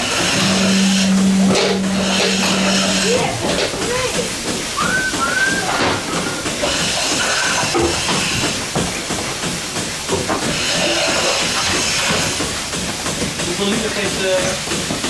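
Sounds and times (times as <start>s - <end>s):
milking machine hissing: 0.0s - 15.0s.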